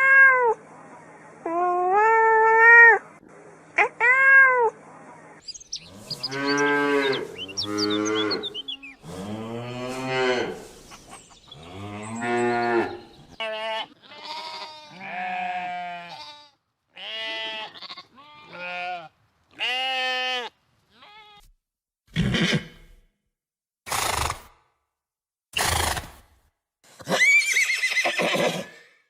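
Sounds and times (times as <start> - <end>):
sheep bleating: 5.8 - 10.6, 11.6 - 21.5
cow mooing: 5.8 - 10.7, 11.6 - 13.2.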